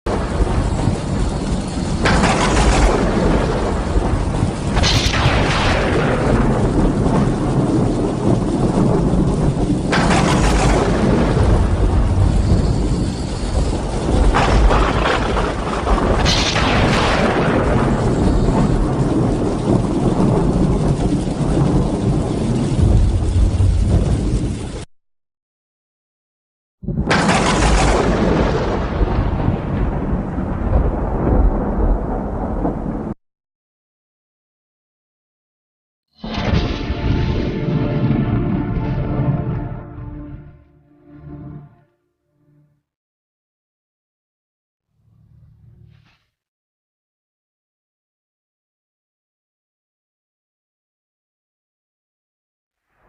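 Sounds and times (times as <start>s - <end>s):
rain falling: 0.1s - 16.2s, 17.4s - 24.9s
thunder cracking and rumbling: 0.1s - 24.9s, 26.8s - 33.2s, 36.2s - 40.6s.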